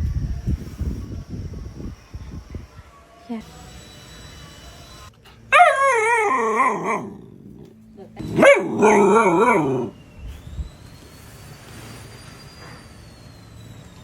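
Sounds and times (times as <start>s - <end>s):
dog howling: 5.5s - 10.0s.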